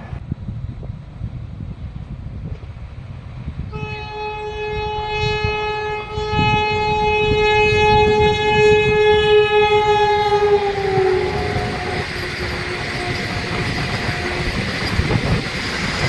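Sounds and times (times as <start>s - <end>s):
train rumble: 0.0s - 16.0s
train horn blast: 3.7s - 15.2s.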